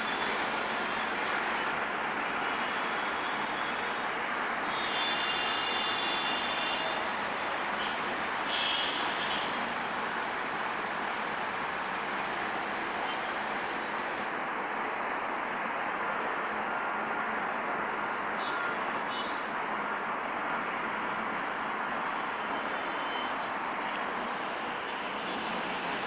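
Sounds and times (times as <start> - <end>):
train rolling along rails: 0.0 - 17.1, 23.5 - 26.0.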